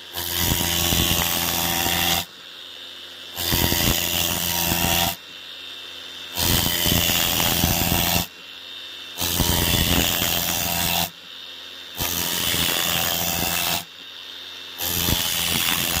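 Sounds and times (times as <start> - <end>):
router cutting foam board: 0.0 - 2.3, 3.3 - 5.2, 6.3 - 8.3, 9.2 - 11.2, 12.0 - 13.9, 14.8 - 16.0.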